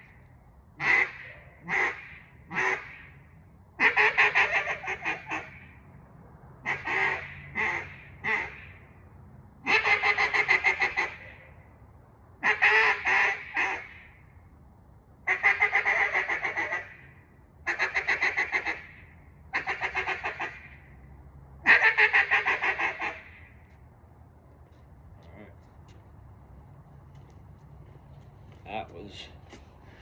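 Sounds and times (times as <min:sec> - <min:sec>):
duck call blown: 0:03.8 - 0:05.5, 0:09.7 - 0:11.2, 0:12.4 - 0:14.0, 0:15.3 - 0:16.9, 0:19.6 - 0:20.6, 0:21.7 - 0:23.4.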